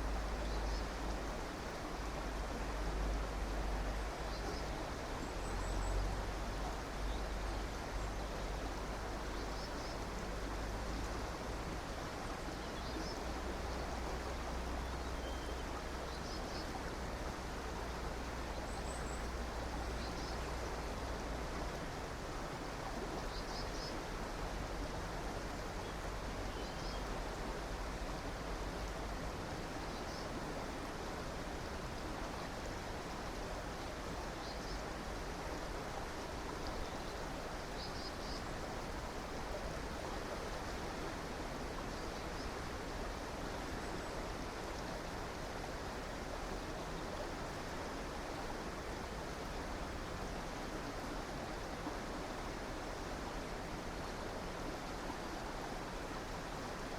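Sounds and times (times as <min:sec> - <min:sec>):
river water rushing: 0:00.0 - 0:56.9
faint bird chirps: 0:15.1 - 0:16.7.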